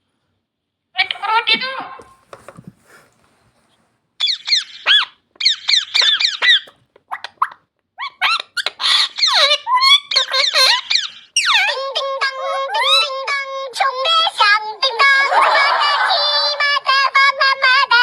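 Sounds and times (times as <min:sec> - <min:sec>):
parrot shrill squeaky calls: 0:04.2 - 0:11.7.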